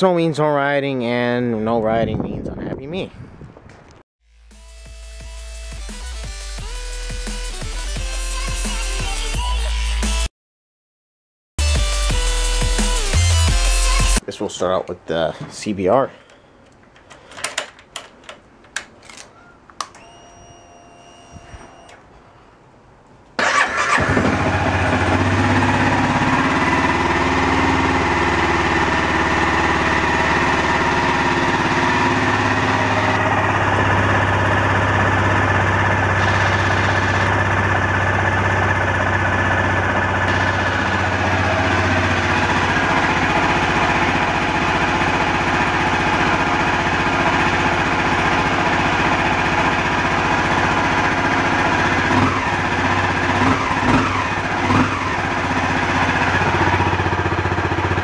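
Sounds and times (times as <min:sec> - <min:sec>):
clicks: 0:16.3 - 0:20.4
short steady whine: 0:19.9 - 0:22.0, 0:29.6 - 0:45.7
motorcycle engine starting and idling: 0:23.4 - 0:58.0.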